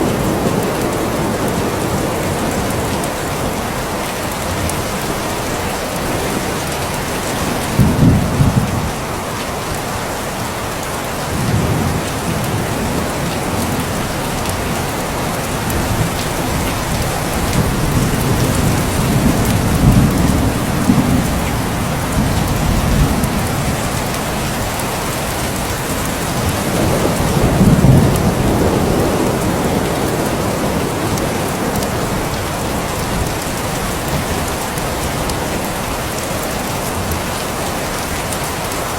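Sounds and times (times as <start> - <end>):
heavy rain: 0.0 - 38.9
thunder rolling: 4.6 - 9.0, 11.2 - 34.7.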